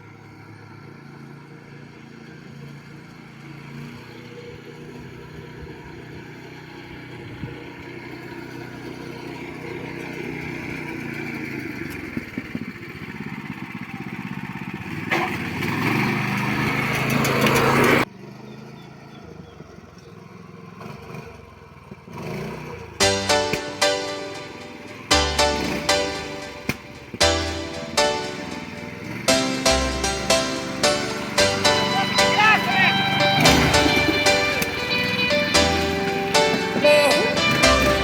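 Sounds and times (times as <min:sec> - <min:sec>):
vehicle engine running: 0:22.8 - 0:38.0.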